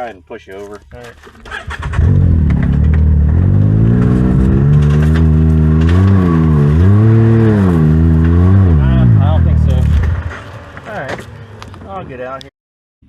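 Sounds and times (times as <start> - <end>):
utility vehicle engine revving: 1.5 - 11.9.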